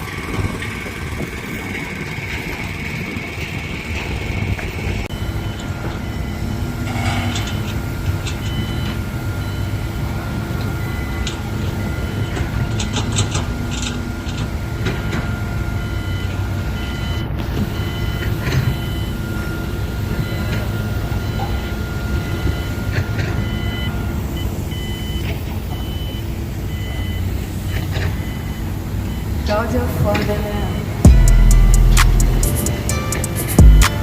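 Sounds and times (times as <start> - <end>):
machinery engine rumbling: 0.0 - 34.0
short high beeps: 28.2 - 34.0.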